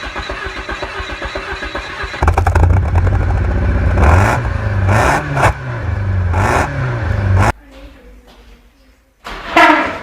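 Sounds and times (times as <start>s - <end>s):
engine revving with deep drone: 2.2s - 7.6s.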